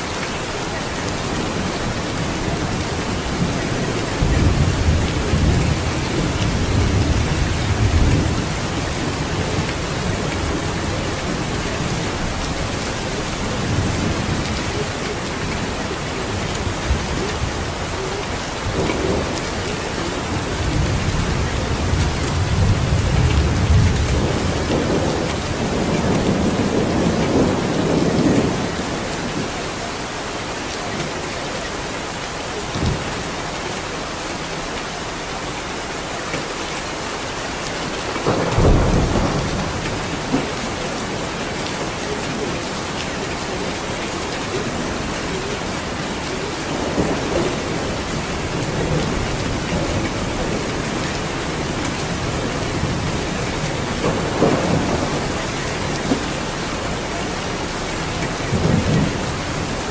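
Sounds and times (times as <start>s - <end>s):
heavy rain: 0.0s - 59.9s
thunder rumbling: 0.7s - 29.5s, 38.0s - 59.9s
thunder crack: 38.2s - 40.6s, 53.9s - 56.3s.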